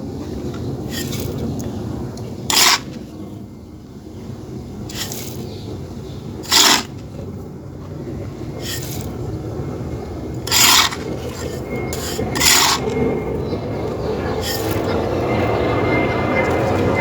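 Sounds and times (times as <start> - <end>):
steady low rumble: 0.0 - 17.0
rasping scrapes of clay: 0.9 - 1.5, 2.5 - 3.0, 4.9 - 5.5, 6.4 - 7.0, 8.6 - 9.2, 10.5 - 13.0, 14.4 - 15.0.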